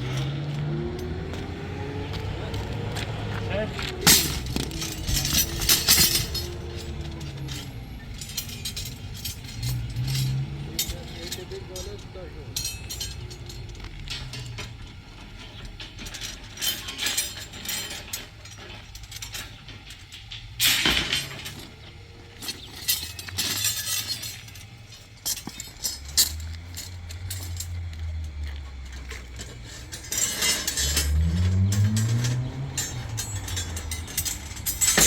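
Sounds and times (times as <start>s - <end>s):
hard objects clinking and knocking: 3.0s - 35.0s.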